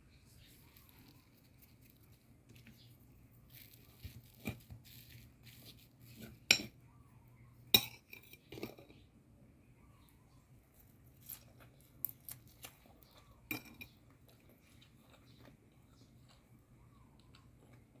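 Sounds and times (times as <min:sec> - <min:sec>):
cutlery clinking against dishes: 0:06.5 - 0:06.8, 0:07.8 - 0:08.9, 0:13.5 - 0:14.0.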